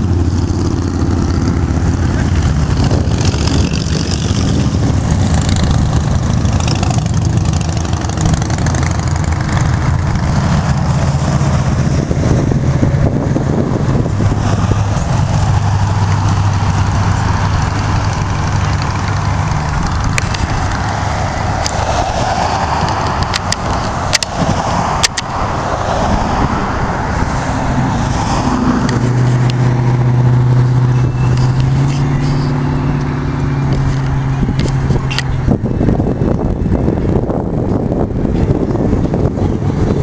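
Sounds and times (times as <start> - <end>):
car engine idling: 4.9 - 22.2.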